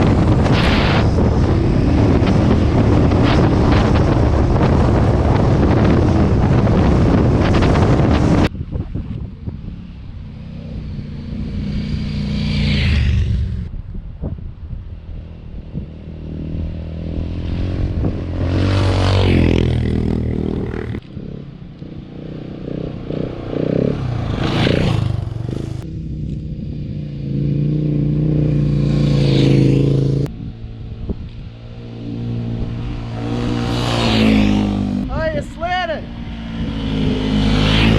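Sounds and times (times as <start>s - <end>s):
motorcycle engine revving: 9.4s - 13.7s, 15.1s - 35.4s, 36.0s - 37.9s.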